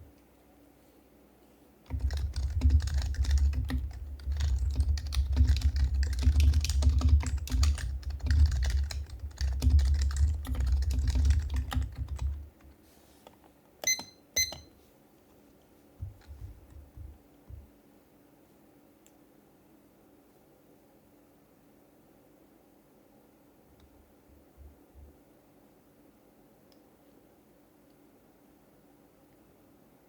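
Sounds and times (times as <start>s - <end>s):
fast keyboard typing: 1.9s - 12.5s
short high beeps: 13.8s - 14.7s.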